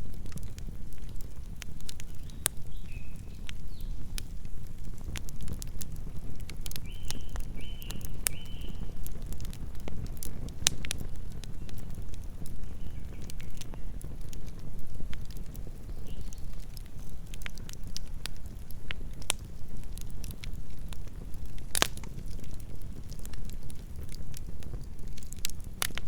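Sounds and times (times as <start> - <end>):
campfire crackling and popping: 0.0 - 26.0
low fire rumble: 0.0 - 26.0.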